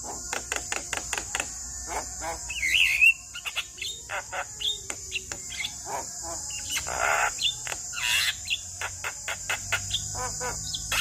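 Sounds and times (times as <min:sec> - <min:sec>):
bird chattering song: 0:00.0 - 0:11.0
harsh rasping bird calls: 0:00.0 - 0:11.0.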